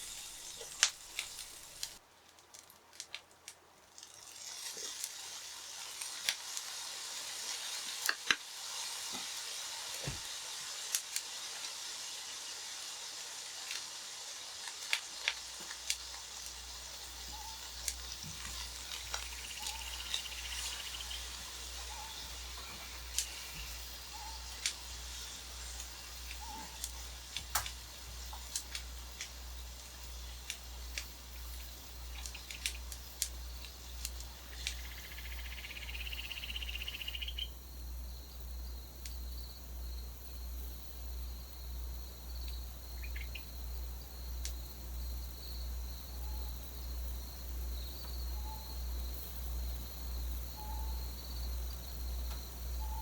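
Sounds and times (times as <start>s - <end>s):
insects buzzing trill: 0.0s - 2.0s, 8.6s - 53.0s
steady high insect tone: 0.0s - 2.0s, 15.6s - 53.0s
owl hooting softly: 17.2s - 17.9s, 19.2s - 24.7s, 26.0s - 27.0s, 34.5s - 37.5s, 48.3s - 48.8s, 50.5s - 51.2s, 52.7s - 53.0s.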